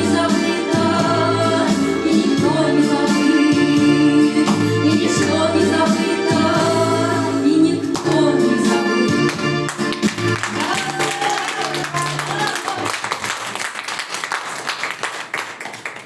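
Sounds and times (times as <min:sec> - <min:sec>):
voices singing: 0:00.0 - 0:09.3
instrumental backing with bass: 0:00.0 - 0:12.5.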